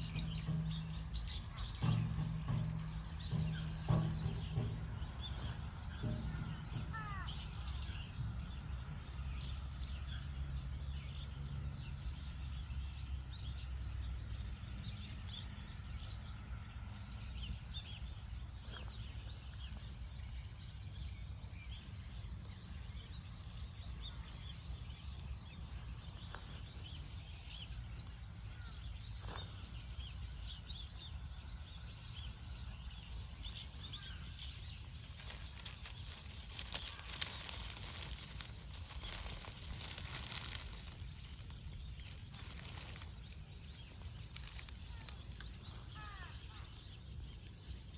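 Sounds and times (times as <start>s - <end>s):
low rumble of background noise: 0.0s - 47.9s
small birds chirping: 0.0s - 47.9s.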